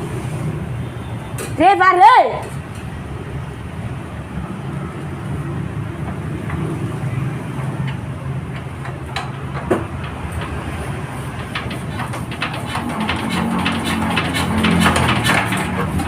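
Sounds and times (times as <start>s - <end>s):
generator engine running: 5.8s - 16.0s.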